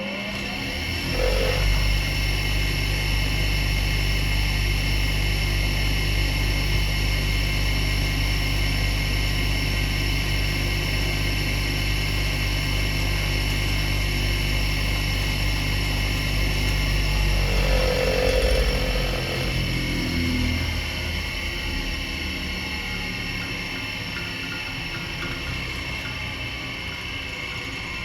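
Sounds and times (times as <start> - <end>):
angle grinder whining: 0.0 - 2.5, 16.1 - 20.9.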